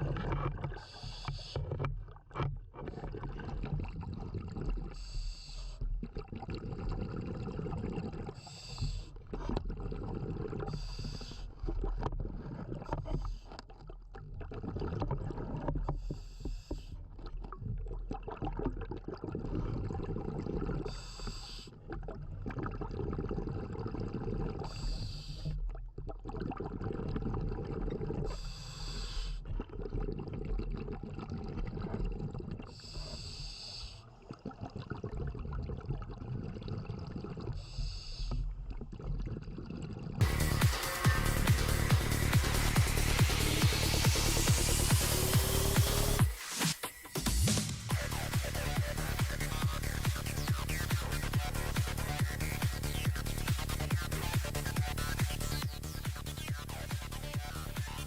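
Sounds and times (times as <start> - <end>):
exhaled air bubbling underwater: 0.0 - 46.5, 47.9 - 58.0
regulator breathing hiss: 0.8 - 1.6, 8.4 - 9.1, 10.7 - 11.4, 20.9 - 21.7, 24.7 - 25.4, 28.3 - 29.4, 32.7 - 34.1, 37.6 - 38.4, 40.2 - 51.3.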